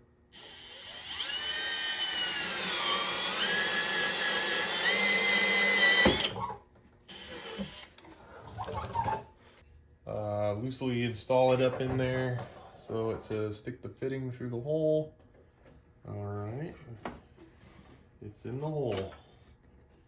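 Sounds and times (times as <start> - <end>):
power drill with hole saw cutting: 0.3 - 7.9.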